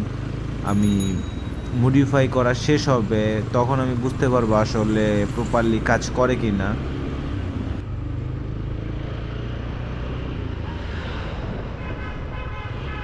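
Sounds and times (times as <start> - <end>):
motorcycle engine running: 0.0 - 9.1
road and traffic noise: 0.0 - 13.0.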